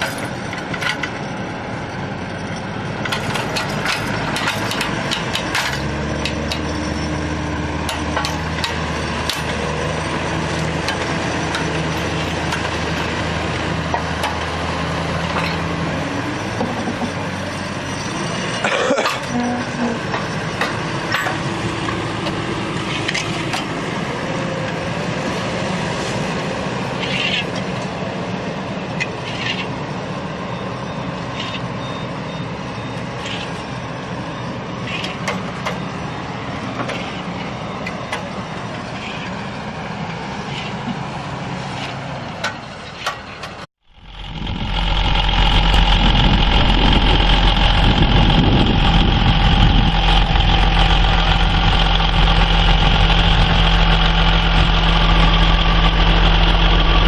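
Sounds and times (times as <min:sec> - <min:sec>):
heavy vehicle engine running: 0:00.0 - 0:57.0
knocks and clatter: 0:03.0 - 0:06.8, 0:16.5 - 0:17.2.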